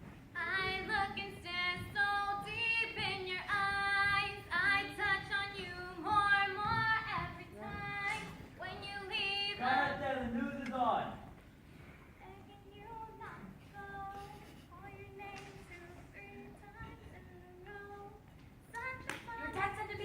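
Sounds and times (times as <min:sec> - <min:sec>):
woman singing: 0:00.4 - 0:09.6, 0:12.2 - 0:20.0.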